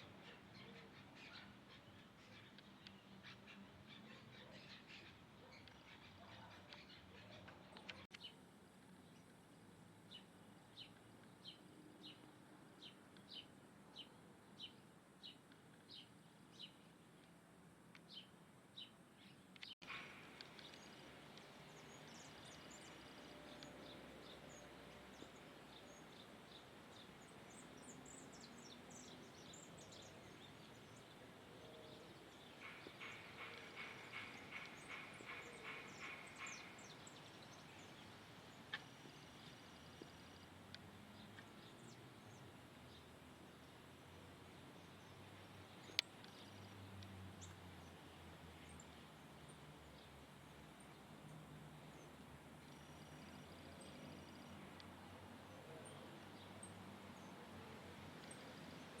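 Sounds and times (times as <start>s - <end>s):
faint bird calls: 31.0s - 40.3s.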